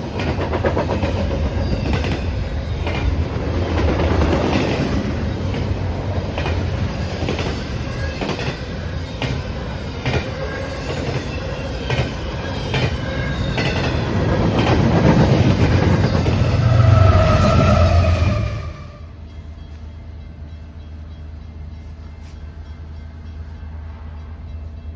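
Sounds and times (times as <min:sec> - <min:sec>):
railroad cars rumbling past: 0:00.0 - 0:24.9
wheel squeal: 0:16.0 - 0:19.0.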